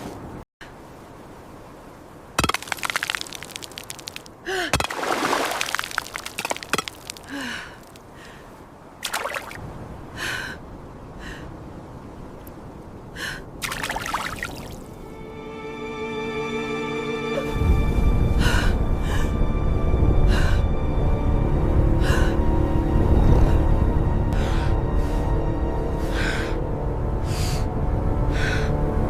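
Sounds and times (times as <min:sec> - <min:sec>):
person gasping and breathing hard: 0:04.4 - 0:04.9, 0:07.2 - 0:08.3.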